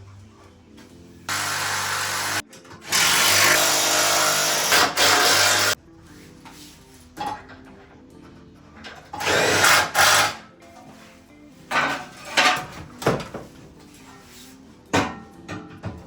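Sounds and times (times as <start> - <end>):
background music: 0.0 - 16.0
power tool bursts: 1.3 - 5.8, 9.2 - 10.4.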